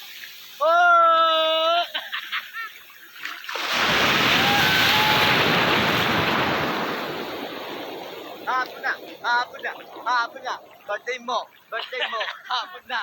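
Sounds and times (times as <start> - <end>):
ocean wave breaking: 3.4 - 11.7.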